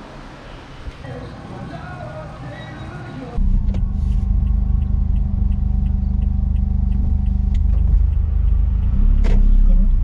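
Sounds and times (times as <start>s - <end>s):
car engine running low: 3.4s - 10.0s
light even ticking: 4.2s - 10.0s.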